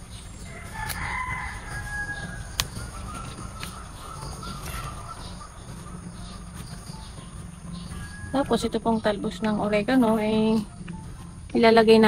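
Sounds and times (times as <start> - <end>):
faint drawn-out bird calls: 0.0 - 9.6
low outdoor rumble: 0.0 - 12.0.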